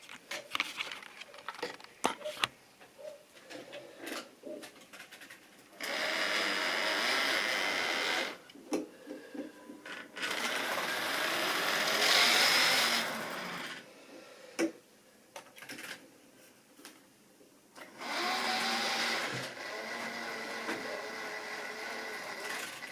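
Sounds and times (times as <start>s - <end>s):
model train motor whirring: 10.2s - 13.8s, 18.0s - 22.9s.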